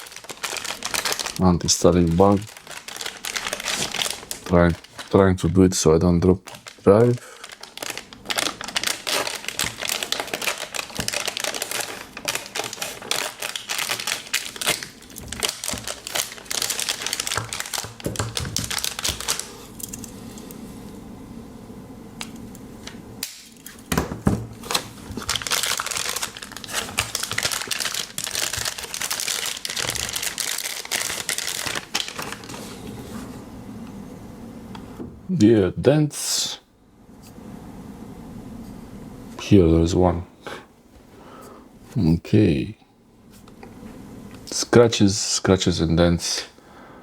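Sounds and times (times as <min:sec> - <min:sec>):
plastic bag crinkling: 0:00.0 - 0:05.5, 0:06.4 - 0:20.1, 0:23.4 - 0:33.1.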